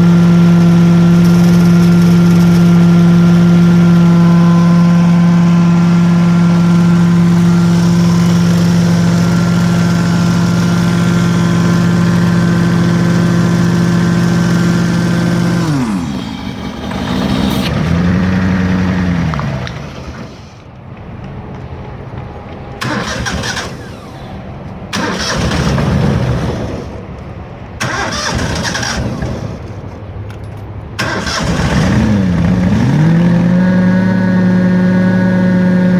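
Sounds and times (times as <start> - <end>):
carpet cleaning machine engine running: 0.0 - 20.7.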